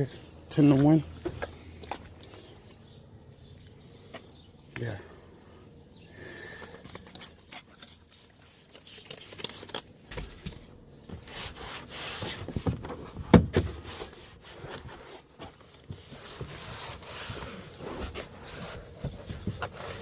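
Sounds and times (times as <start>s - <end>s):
scraping and rubbing noises: 6.7s - 20.0s.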